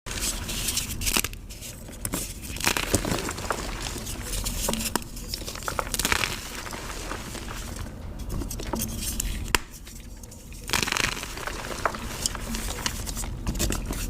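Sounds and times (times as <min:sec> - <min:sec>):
chalk crunching and crumbling: 0:00.1 - 0:14.0.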